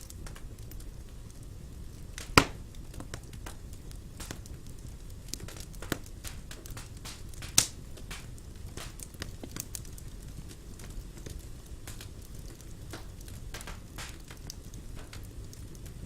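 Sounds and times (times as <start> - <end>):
fire crackling: 0.0 - 16.0
fire flames rumbling: 0.0 - 16.0
loud fire pops: 0.0 - 16.0.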